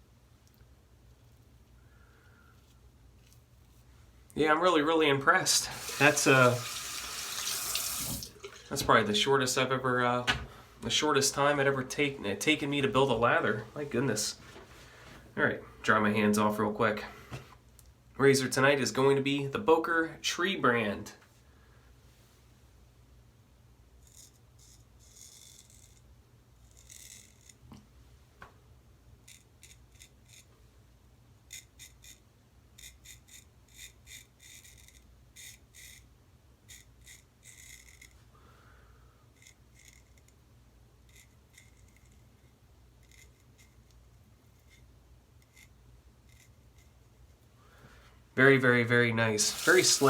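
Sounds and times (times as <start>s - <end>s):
razor scraping stubble: 32.8s - 36.0s, 36.7s - 38.2s, 41.1s - 43.9s, 44.5s - 47.0s, 49.4s - 50.0s.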